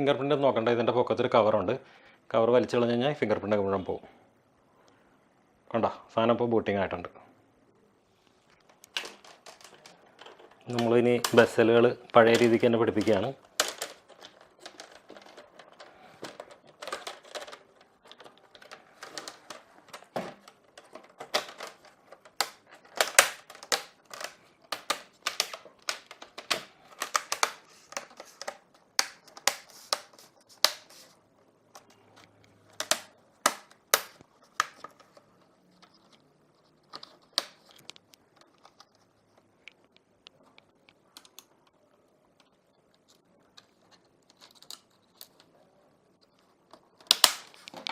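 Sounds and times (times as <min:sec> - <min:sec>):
plastic clips snapping: 0:08.6 - 0:30.9, 0:46.7 - 0:47.9.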